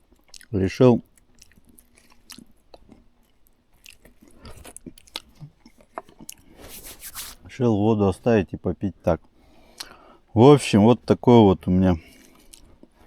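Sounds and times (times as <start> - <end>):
person chewing food: 0.0 - 0.5, 1.1 - 6.6, 9.7 - 10.0, 12.1 - 13.0.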